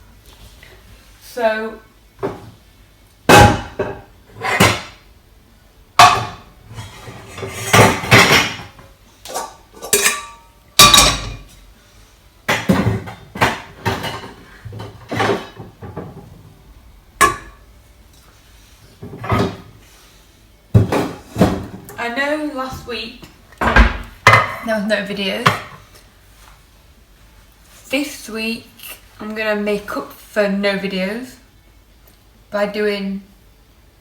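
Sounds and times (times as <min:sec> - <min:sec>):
pots and pans clattering: 0:03.3 - 0:05.0, 0:06.0 - 0:11.6, 0:12.5 - 0:16.5, 0:17.2 - 0:17.7, 0:19.0 - 0:19.8, 0:20.7 - 0:22.0.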